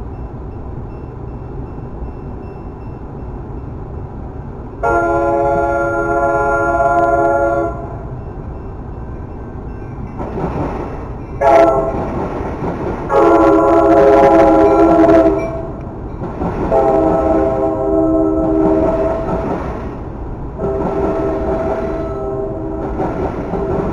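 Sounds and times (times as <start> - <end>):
passing train rumble: 0.0 - 23.9
locomotive air horn blasts: 4.8 - 8.1, 11.4 - 12.1, 13.1 - 15.8, 16.7 - 19.4, 20.6 - 23.0.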